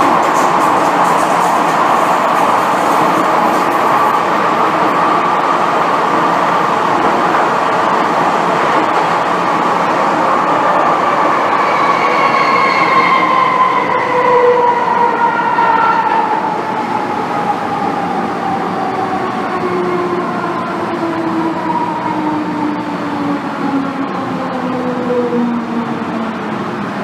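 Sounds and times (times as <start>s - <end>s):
subway train rumble: 0.0s - 27.0s.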